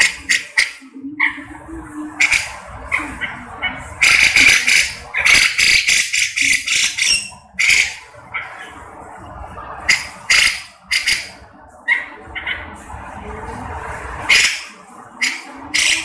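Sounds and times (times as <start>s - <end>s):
bird calling loudly: 0.0s - 1.5s, 2.2s - 8.8s, 9.9s - 12.8s, 14.3s - 16.0s.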